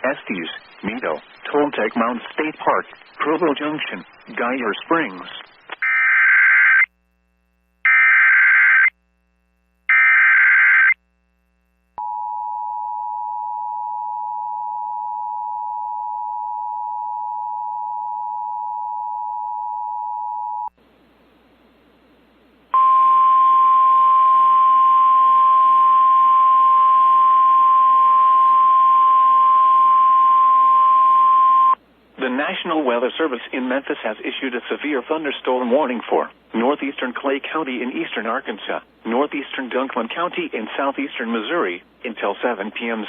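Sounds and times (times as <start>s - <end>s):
radio static: 0.0s - 6.9s.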